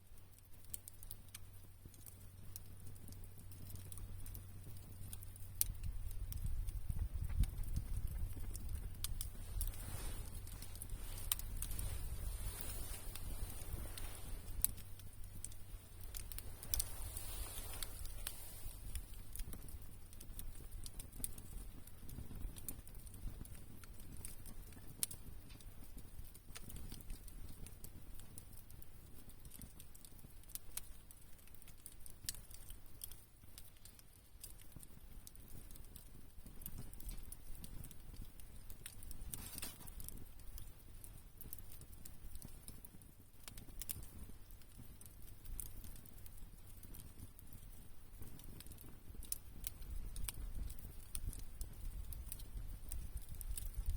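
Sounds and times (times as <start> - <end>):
wood campfire crackling: 0.0 - 53.9
low steady hum: 1.2 - 20.9.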